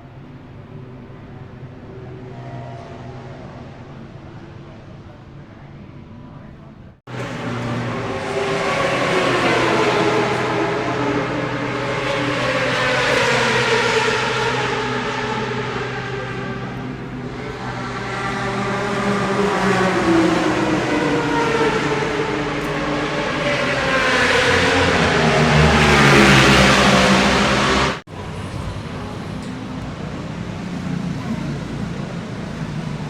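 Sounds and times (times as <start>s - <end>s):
steady engine sound: 7.0s - 33.0s.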